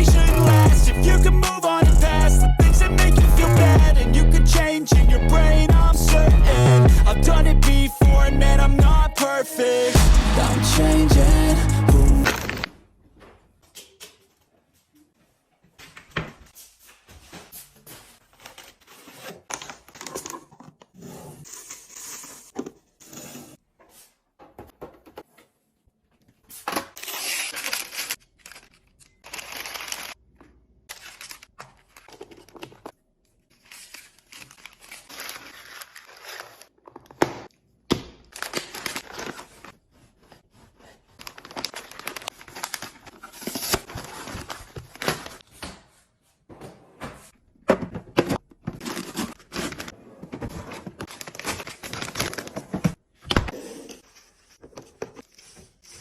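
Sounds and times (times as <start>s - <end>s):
packaging tearing and crinkling: 26.8s - 30.2s, 30.9s - 32.6s, 33.6s - 36.8s, 38.3s - 39.8s, 41.0s - 45.4s, 50.8s - 52.6s.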